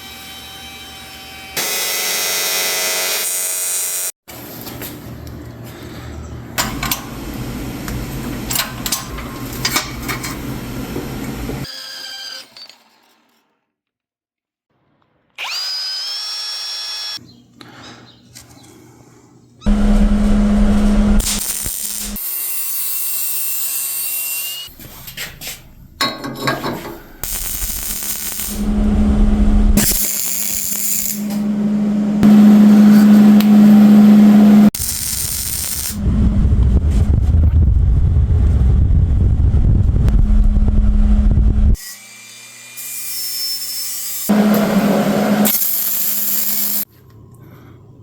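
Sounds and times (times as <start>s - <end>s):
power tools running: 0.0s - 4.2s, 15.4s - 17.2s, 19.7s - 22.3s, 27.2s - 36.1s, 44.2s - 46.8s.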